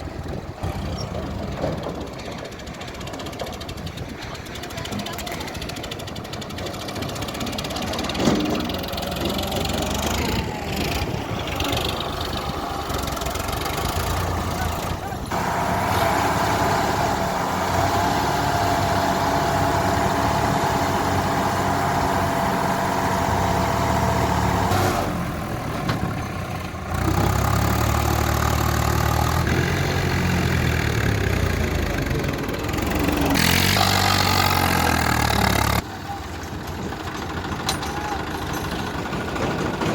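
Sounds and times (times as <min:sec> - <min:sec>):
tractor engines running: 0:00.0 - 0:39.9.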